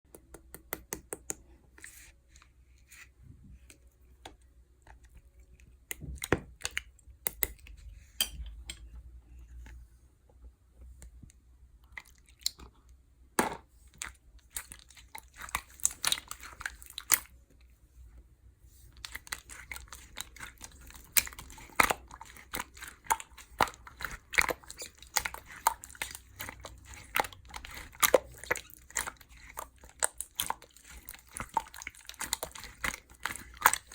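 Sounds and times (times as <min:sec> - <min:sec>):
slime squished by hand: 0:19.0 - 0:33.9.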